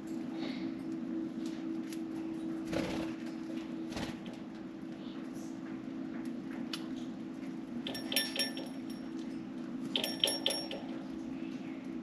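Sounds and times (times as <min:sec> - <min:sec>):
metallic clinking of birdcage: 0:07.9 - 0:11.0.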